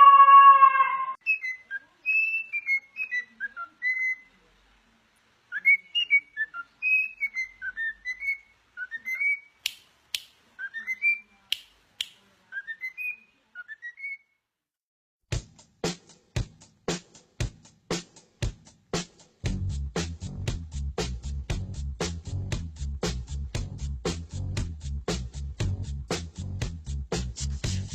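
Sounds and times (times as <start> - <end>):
parrot whistling: 0.0 - 3.3.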